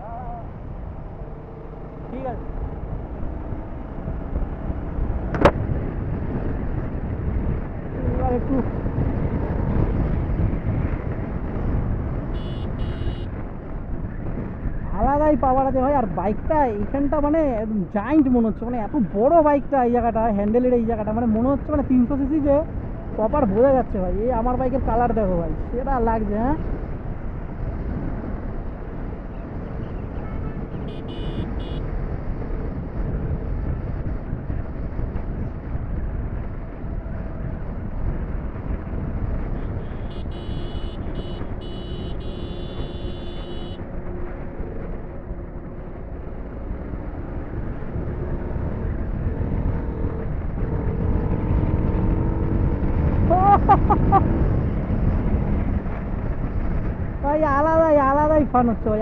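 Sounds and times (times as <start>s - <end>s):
wind rush on microphone: 0.0s - 59.0s
motorcycle engine at speed: 0.6s - 14.8s, 26.7s - 57.2s.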